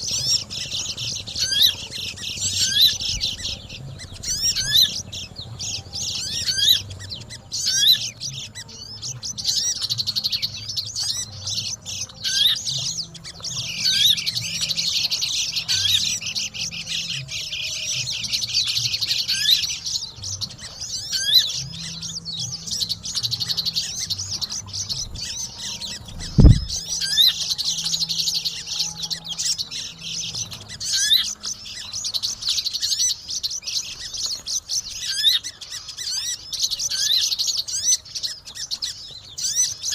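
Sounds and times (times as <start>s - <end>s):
birds chirping and twittering: 0.0s - 39.9s
loud low thump: 26.2s - 26.8s.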